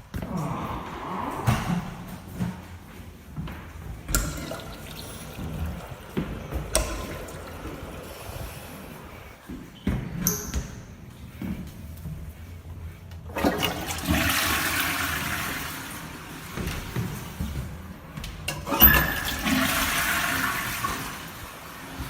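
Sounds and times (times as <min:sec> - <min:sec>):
toilet flushing water rush: 0:04.0 - 0:09.3, 0:13.3 - 0:17.7, 0:18.5 - 0:22.0.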